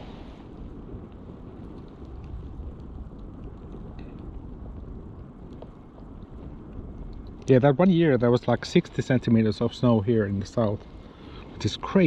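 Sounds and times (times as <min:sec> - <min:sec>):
wind rumble on microphone: 0:00.0 - 0:12.0
faint ticks: 0:00.5 - 0:07.5.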